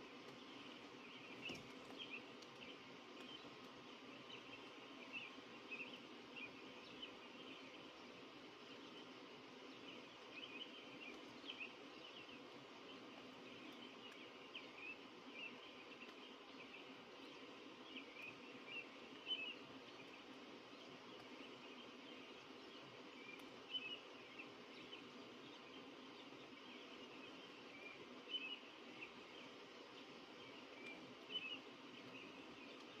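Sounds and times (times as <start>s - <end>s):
birds chirping faintly: 0.0s - 33.0s
steady background hiss: 0.0s - 33.0s.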